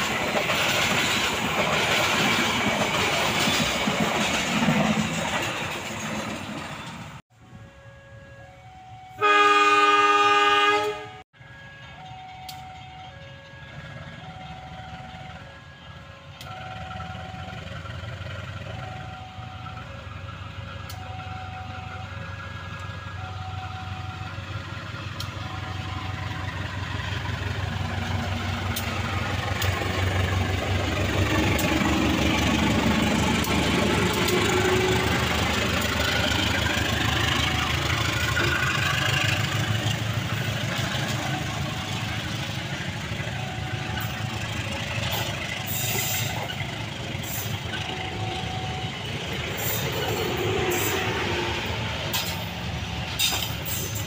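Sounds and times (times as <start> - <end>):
wheels clicking over rail joints: 0.0 - 7.2, 26.4 - 48.4, 49.0 - 54.0
diesel locomotive passing: 0.0 - 54.0.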